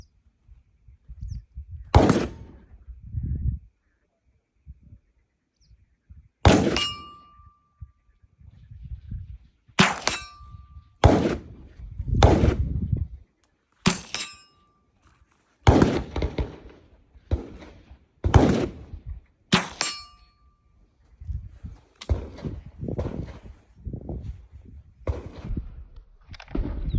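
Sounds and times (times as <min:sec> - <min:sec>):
rifle shots: 0:02.0 - 0:02.6, 0:06.5 - 0:07.3, 0:09.8 - 0:12.7, 0:13.8 - 0:14.5, 0:15.6 - 0:20.2, 0:22.0 - 0:23.5
metallic ding of steel target: 0:06.7 - 0:07.6, 0:09.8 - 0:10.8, 0:13.9 - 0:14.8, 0:19.5 - 0:20.5.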